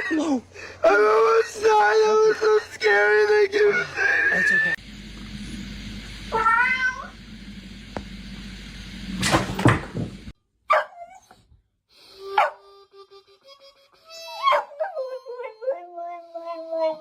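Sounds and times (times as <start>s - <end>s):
cat meowing: 6.3s - 7.1s
loud knock: 9.2s - 10.2s.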